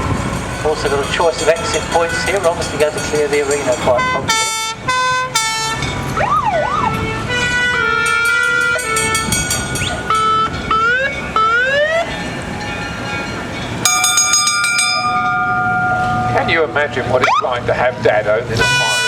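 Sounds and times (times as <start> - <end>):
long steady horn blast: 3.9 - 5.9, 6.8 - 9.5, 18.6 - 19.0
two-tone horn: 4.0 - 5.8, 6.8 - 10.5, 18.6 - 19.0
rising siren whoops: 6.2 - 8.9, 9.8 - 12.1.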